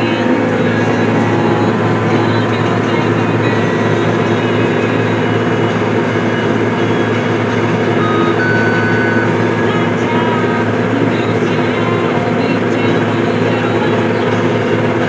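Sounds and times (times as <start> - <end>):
brief high tone: 0.0 - 11.4
tractor engine running: 0.0 - 15.0.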